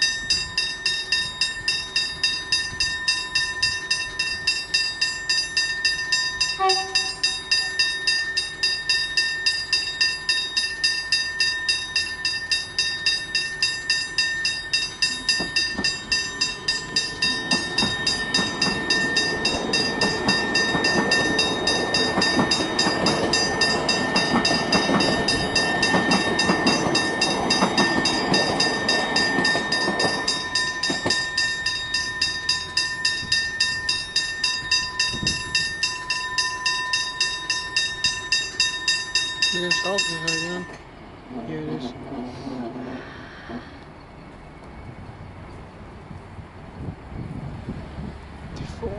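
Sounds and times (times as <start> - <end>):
level crossing bells ringing: 0.0 - 40.9
train passing: 0.0 - 48.9
train horn note: 6.5 - 7.7.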